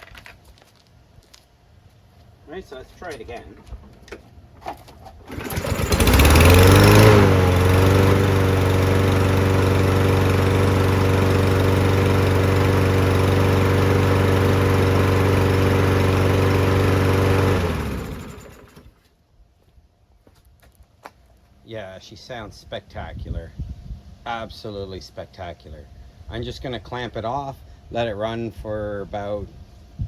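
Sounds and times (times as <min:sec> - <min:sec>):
lawn mower engine running: 0:03.0 - 0:19.0.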